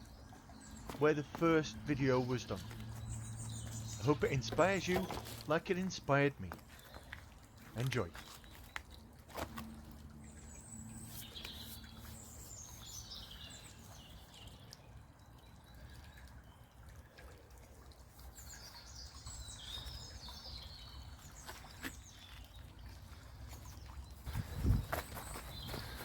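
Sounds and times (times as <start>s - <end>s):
songbird twittering: 0.0s - 5.8s, 10.4s - 14.8s, 18.4s - 22.6s
low background rumble of brook: 0.0s - 26.0s.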